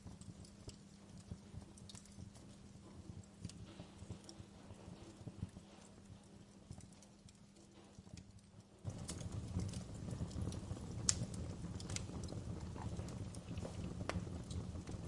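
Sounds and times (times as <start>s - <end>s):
low rumble of burning: 0.0s - 15.0s
wood fire crackling: 0.0s - 15.0s.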